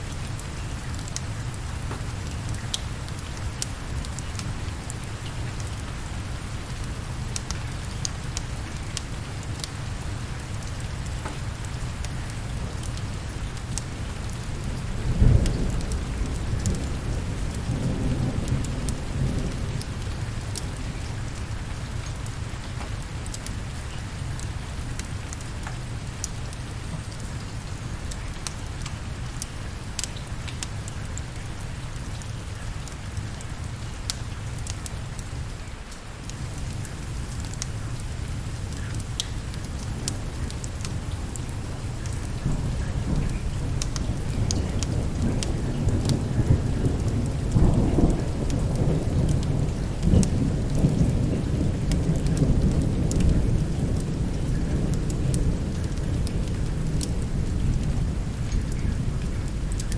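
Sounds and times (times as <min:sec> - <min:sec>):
steady rain: 0:00.0 - 0:59.9
thunderclap: 0:39.4 - 0:59.8.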